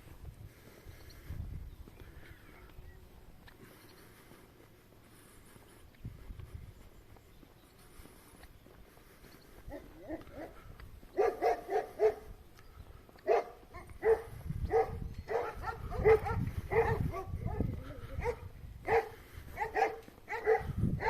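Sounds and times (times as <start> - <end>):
dog barking: 9.7 - 10.6, 11.2 - 12.4, 13.2 - 21.0.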